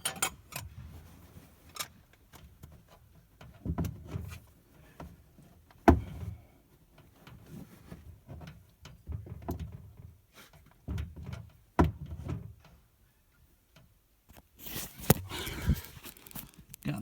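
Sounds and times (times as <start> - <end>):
metal clunks of hand tools: 0.0 - 0.7.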